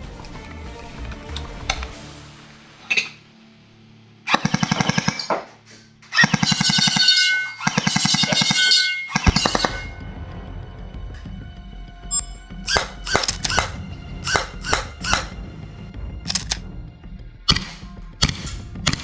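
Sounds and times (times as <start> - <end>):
background music: 0.0 - 5.3
airsoft pistol firing bursts: 13.2 - 13.7, 16.3 - 16.6.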